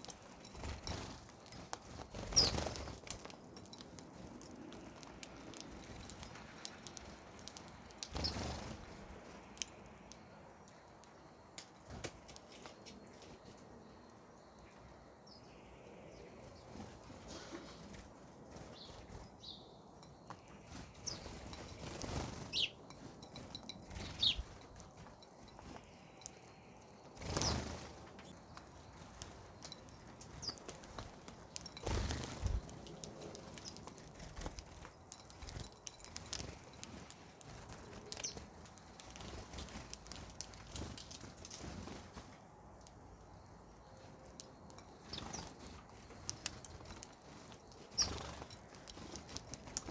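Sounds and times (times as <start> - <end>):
wing flutters: 0.2 - 3.4, 27.2 - 42.4
bird chirps: 2.1 - 2.9, 8.0 - 8.6, 18.7 - 24.6, 25.4 - 30.8, 43.3 - 49.9.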